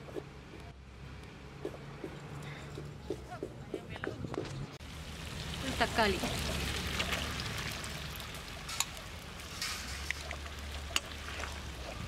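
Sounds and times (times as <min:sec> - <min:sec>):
tomatoes sizzling in oil: 0:04.8 - 0:12.0.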